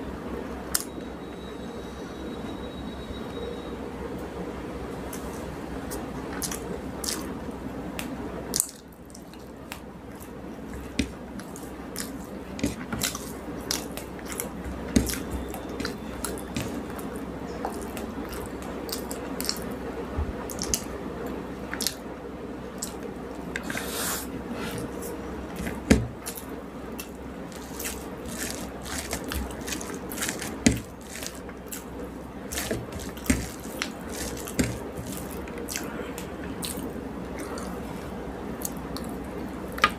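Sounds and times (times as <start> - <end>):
food mixed by hand: 4.9 - 39.9
wet squishes and clicks: 8.0 - 19.8, 20.4 - 22.0.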